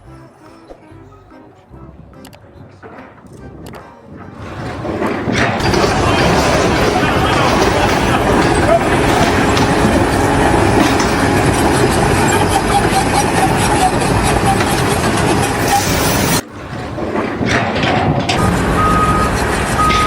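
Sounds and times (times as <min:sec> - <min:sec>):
heavy machinery engine: 0:04.3 - 0:20.0.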